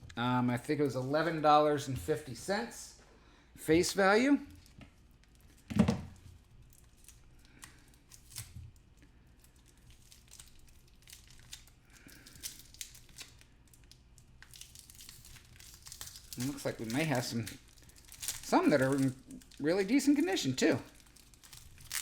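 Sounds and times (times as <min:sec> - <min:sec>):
wrapper tearing and crinkling: 0:04.5 - 0:22.0.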